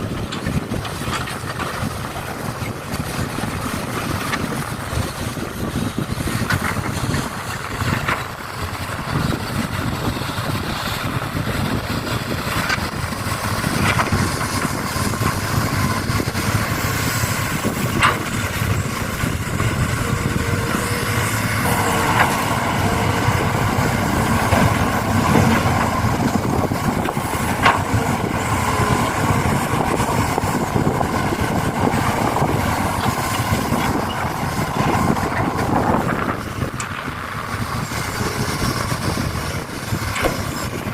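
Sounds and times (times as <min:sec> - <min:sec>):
vehicle motors running: 0:00.1 - 0:40.9
humming tone: 0:19.1 - 0:34.3
sharp clicks and knocks: 0:20.7 - 0:29.1, 0:40.1 - 0:40.7.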